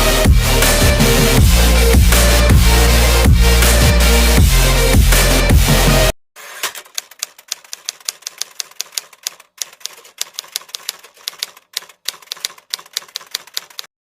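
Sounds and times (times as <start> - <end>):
rapid typing key clicks: 6.7 - 13.9.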